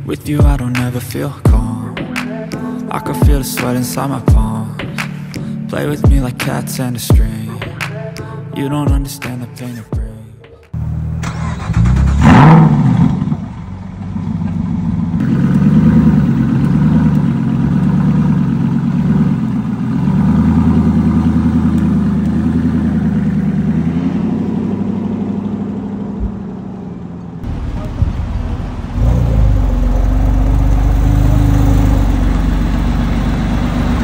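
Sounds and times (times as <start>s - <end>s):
car engine starting and idling: 10.8s - 34.0s.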